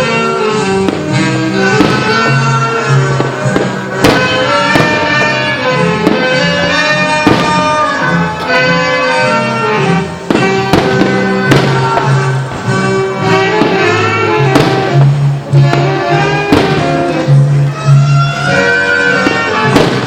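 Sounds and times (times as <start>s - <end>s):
firework bangs: 0.0s - 20.0s
music over loudspeakers: 0.0s - 20.0s.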